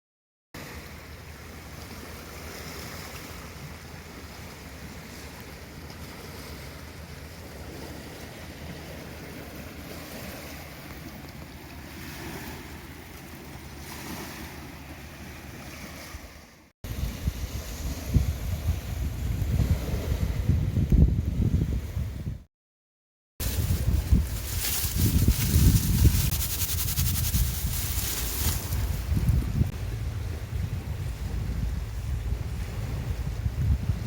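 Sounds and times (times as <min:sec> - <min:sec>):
wind buffeting microphone: 0:16.9 - 0:22.5, 0:23.4 - 0:34.0.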